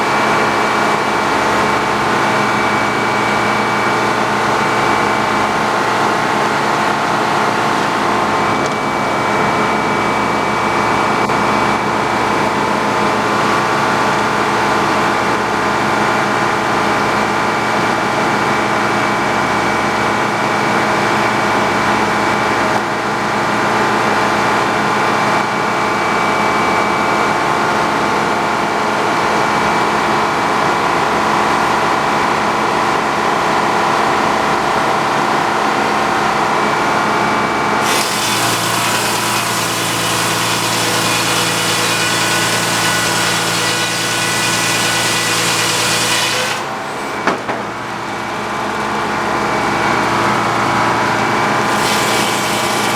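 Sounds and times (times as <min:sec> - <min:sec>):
sawmill engine running: 0:00.0 - 0:52.9
saw blade cutting through log: 0:37.8 - 0:46.9, 0:51.6 - 0:52.9.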